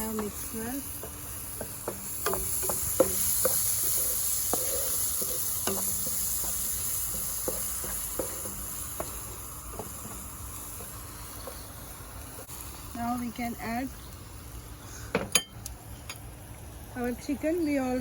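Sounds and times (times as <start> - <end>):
spoon tapping and scraping pan: 0.0 - 11.6
food sizzling in a frying pan: 0.0 - 18.0.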